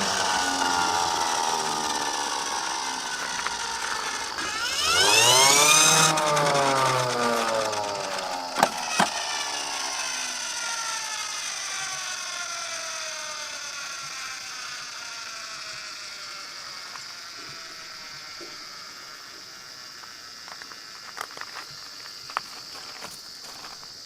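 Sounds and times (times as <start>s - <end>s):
sharp clicks: 0.0s - 15.7s
toy cars whirring on plastic slope: 0.0s - 23.9s.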